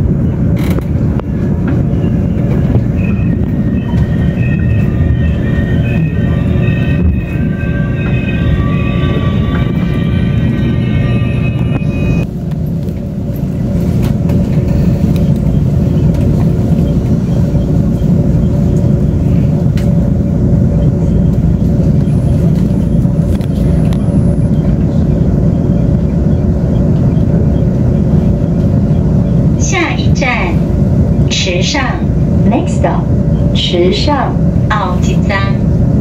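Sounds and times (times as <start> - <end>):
train rumbling from inside: 0.0 - 36.0.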